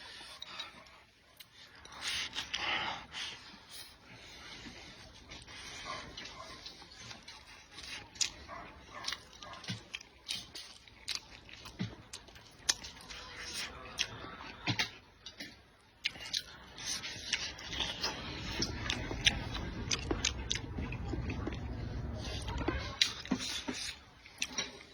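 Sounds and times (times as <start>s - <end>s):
person chewing and biting: 6.1s - 24.9s
low steady rumble: 17.6s - 23.4s.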